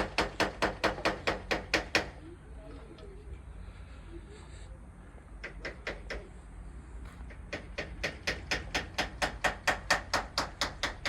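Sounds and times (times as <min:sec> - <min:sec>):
hammer tapping on metal: 0:05.4 - 0:06.3, 0:07.3 - 0:11.0.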